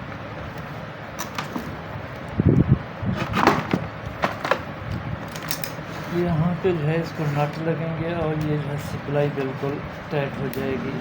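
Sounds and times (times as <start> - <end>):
steady low hum: 6.0 - 11.0.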